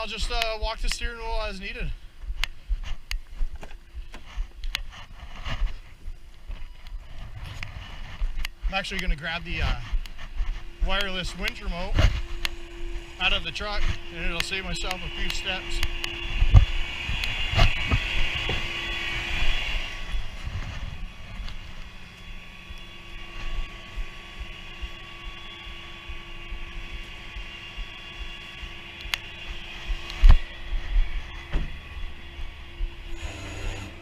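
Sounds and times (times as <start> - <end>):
truck engine rumbling: 7.0 - 34.0.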